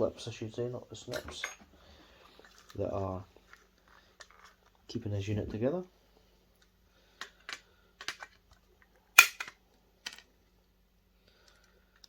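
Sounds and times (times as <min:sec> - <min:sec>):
plastic clips snapping off: 0:09.2 - 0:10.2.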